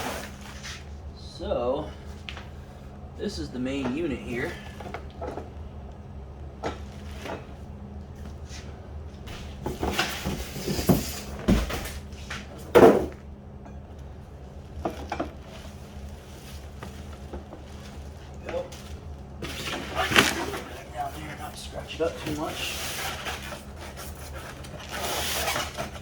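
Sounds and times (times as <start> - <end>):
unpacking scrapes and rustles: 0.0 - 0.9, 15.4 - 26.0.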